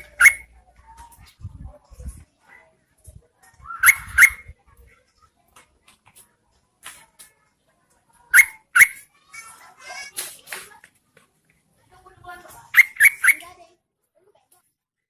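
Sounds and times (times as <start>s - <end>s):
bird calling short sharp notes: 3.7s - 4.5s, 8.3s - 9.0s, 12.7s - 13.5s.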